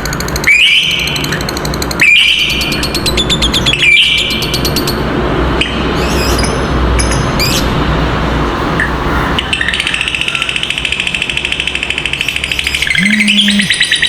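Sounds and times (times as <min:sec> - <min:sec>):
steady low hum: 0:12.9 - 0:13.8
lovebirds chattering trill: 0:12.9 - 0:14.0
soft bird chirps: 0:12.9 - 0:14.0.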